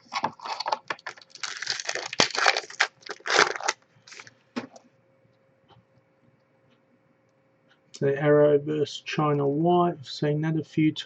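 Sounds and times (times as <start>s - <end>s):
foil wrapper crinkling and tearing: 0.0s - 4.3s.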